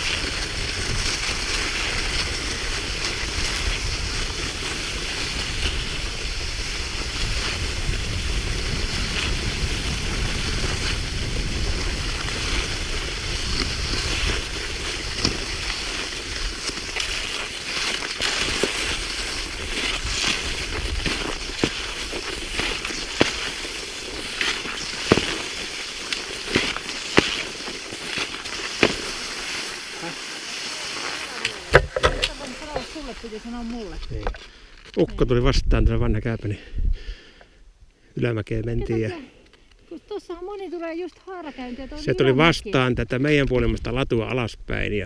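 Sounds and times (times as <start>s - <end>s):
wind rumbling on microphone: 0.0s - 28.2s, 31.6s - 34.4s, 35.2s - 37.3s
skis sliding on snow: 0.0s - 35.1s, 40.0s - 43.4s
ski poles planting in snow: 0.0s - 35.3s.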